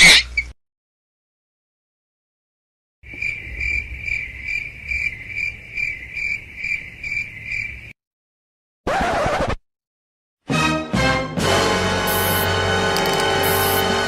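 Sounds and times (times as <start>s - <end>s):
high cricket chirp: 3.1s - 7.9s, 12.1s - 13.9s
short noisy burst: 12.1s - 13.9s.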